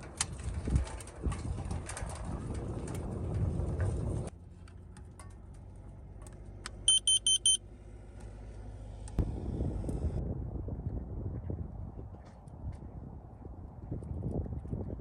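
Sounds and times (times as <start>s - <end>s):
high-pitched electronic beeps: 6.9s - 7.6s.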